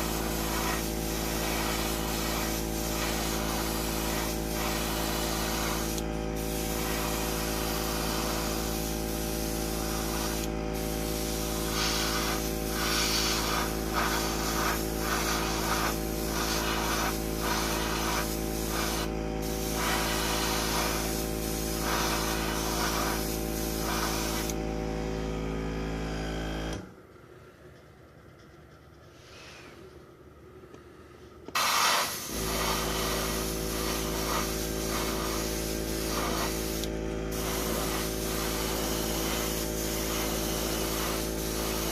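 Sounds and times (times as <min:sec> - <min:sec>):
airbrush spraying hiss: 0:00.0 - 0:24.6, 0:31.5 - 0:41.9
air compressor humming: 0:00.0 - 0:27.1, 0:31.4 - 0:41.9.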